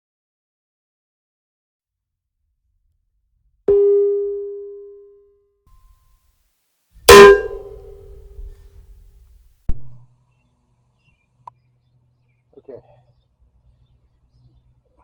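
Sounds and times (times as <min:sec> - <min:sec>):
metallic clangs ringing: 0:07.1 - 0:08.2.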